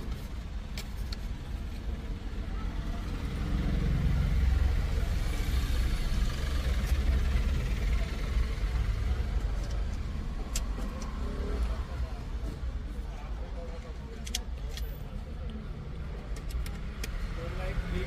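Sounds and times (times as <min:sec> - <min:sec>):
light plastic clicks: 0:16.2 - 0:17.2.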